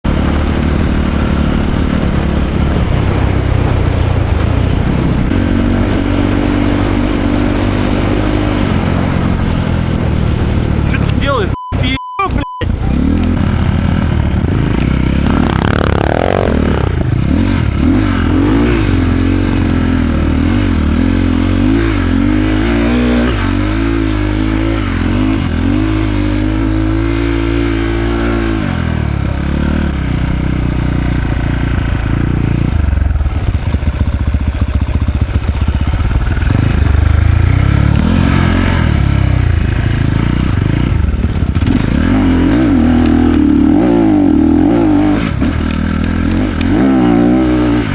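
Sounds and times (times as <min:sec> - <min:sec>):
clatter over rough ground: 0:00.0 - 0:11.3, 0:26.9 - 0:47.9
dirt bike engine revving: 0:00.1 - 0:47.9.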